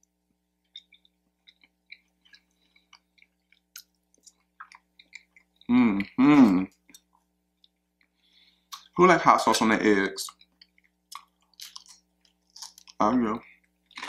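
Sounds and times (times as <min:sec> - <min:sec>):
chewing with wet mouth smacks: 0:00.6 - 0:09.0, 0:10.3 - 0:14.0
person making voiced sound: 0:05.7 - 0:06.7.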